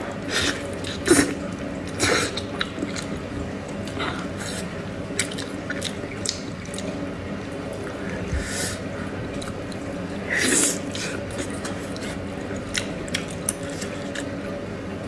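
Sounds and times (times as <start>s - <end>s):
steady low hum: 0.0s - 15.0s
wet chewing smacks and clicks: 10.9s - 14.4s.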